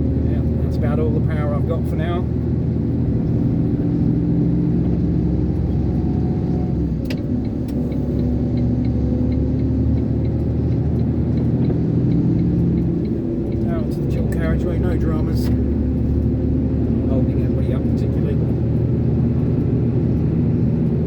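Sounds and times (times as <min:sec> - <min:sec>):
diesel engine pulling under load: 0:00.0 - 0:21.0
faint regular ticking: 0:07.1 - 0:15.0.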